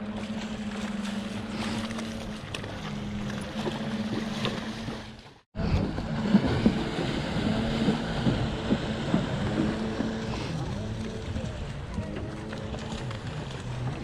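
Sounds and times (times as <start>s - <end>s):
jet ski engine running: 0.0s - 14.0s
wind on microphone: 0.0s - 14.0s.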